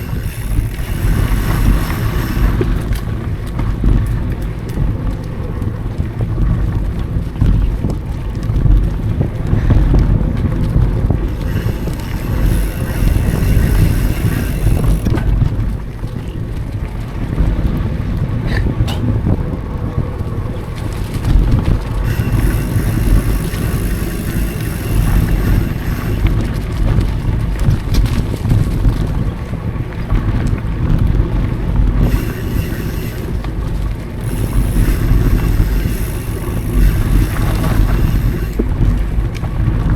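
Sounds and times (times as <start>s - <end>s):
sharp rattles: 0.0s - 3.8s, 10.7s - 15.8s, 21.1s - 28.8s, 31.9s - 39.4s
bicycle freewheel buzzing: 0.0s - 4.9s, 9.6s - 15.9s, 20.8s - 29.2s, 31.4s - 39.9s
wind rumble on microphone: 0.0s - 39.9s.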